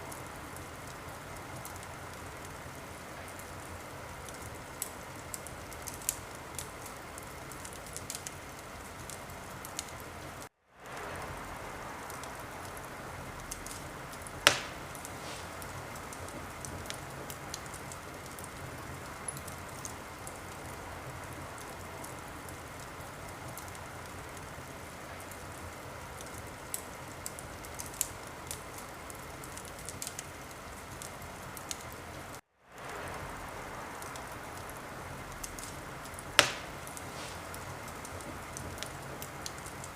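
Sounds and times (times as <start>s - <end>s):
wood fire hissing and crackling: 0.0s - 39.9s
loud pop from fire: 13.6s - 17.6s, 35.4s - 39.6s.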